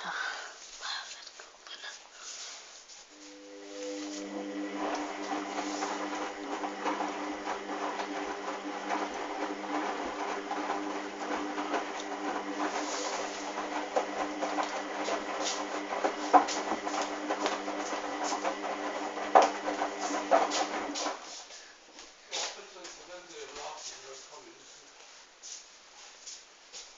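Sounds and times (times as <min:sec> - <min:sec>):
washing machine motor hum: 0:03.1 - 0:21.2.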